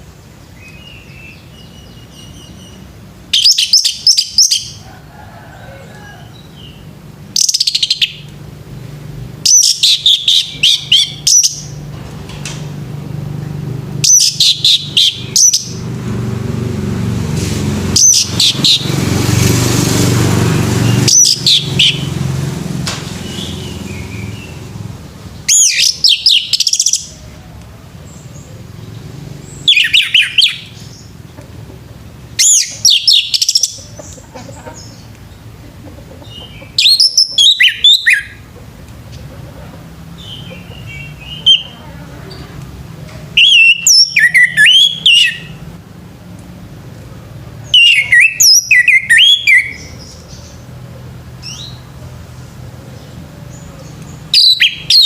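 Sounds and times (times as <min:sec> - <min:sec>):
thrush singing whistled notes: 0:00.6 - 0:04.8, 0:06.3 - 0:08.4, 0:09.4 - 0:11.8, 0:14.0 - 0:15.8, 0:17.9 - 0:19.0, 0:20.8 - 0:22.3, 0:25.4 - 0:27.2, 0:29.5 - 0:31.1, 0:32.4 - 0:33.8, 0:36.5 - 0:38.4, 0:40.2 - 0:41.8, 0:43.4 - 0:45.6, 0:47.6 - 0:50.3, 0:54.1 - 0:55.0.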